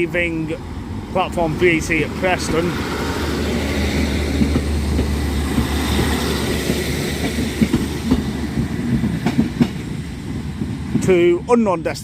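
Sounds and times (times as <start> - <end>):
diesel train engine droning: 0.0 - 12.0
train wheels clicking: 2.1 - 11.4.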